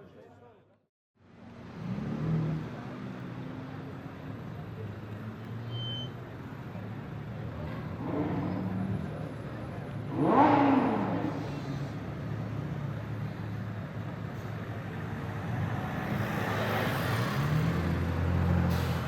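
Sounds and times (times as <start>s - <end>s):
car engine low rumble: 1.2s - 16.6s.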